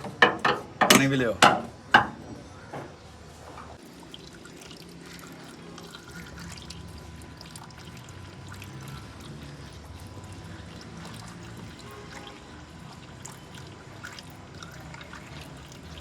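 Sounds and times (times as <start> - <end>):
water pouring in a trickle: 3.8 - 16.0.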